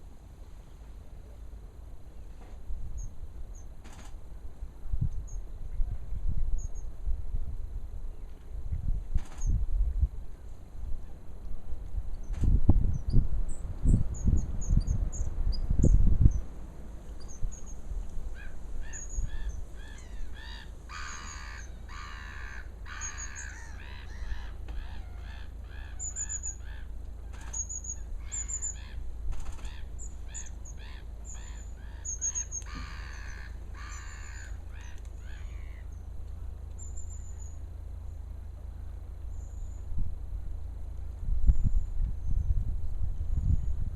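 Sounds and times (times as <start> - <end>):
short repeated bird calls: 18.4 - 35.9
steady low rumble: 21.6 - 43.9.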